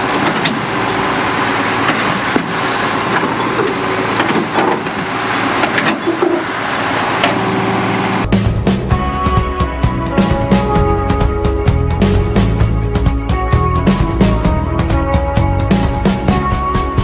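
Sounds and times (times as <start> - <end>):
heavy machine engine running: 0.0 - 9.0
music: 8.2 - 17.0.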